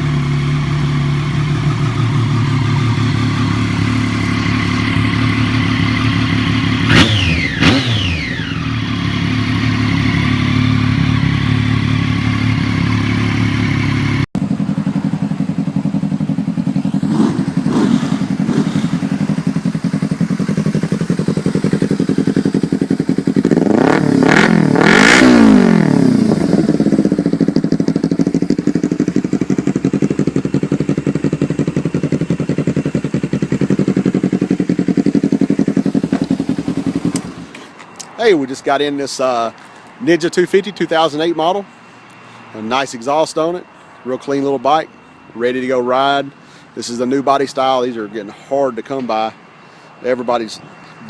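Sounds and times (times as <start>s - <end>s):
motorcycle engine revving: 0.0s - 37.6s
motorcycle idling: 0.0s - 51.0s.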